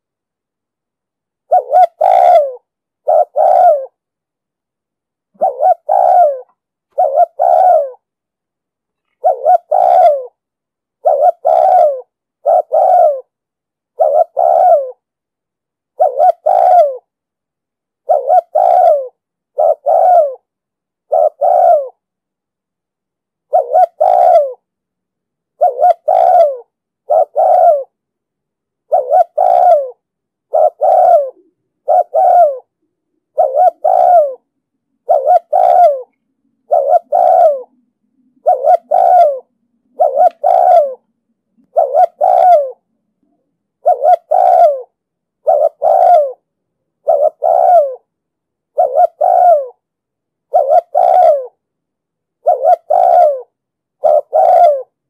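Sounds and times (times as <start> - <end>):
dove cooing: 1.5 - 4.0, 5.3 - 8.1, 9.0 - 10.4, 11.0 - 15.0, 15.9 - 17.1, 18.0 - 20.5, 21.1 - 22.0, 23.5 - 24.7, 25.6 - 28.0, 28.9 - 46.4, 47.0 - 48.1, 48.7 - 49.8, 50.5 - 51.6, 52.4 - 55.0.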